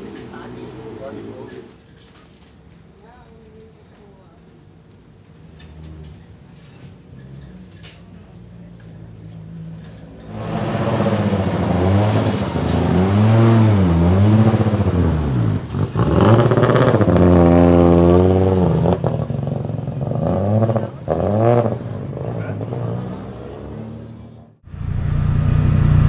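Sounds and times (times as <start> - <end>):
race car engine revving: 10.3 - 26.0.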